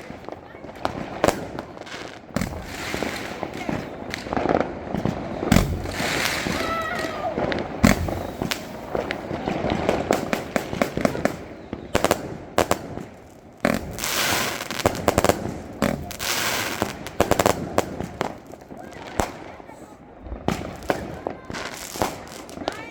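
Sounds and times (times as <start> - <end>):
firecrackers banging and crackling: 0.0 - 22.9
firework hissing: 2.0 - 18.4
loud firework bang: 2.4 - 11.4, 13.7 - 17.6.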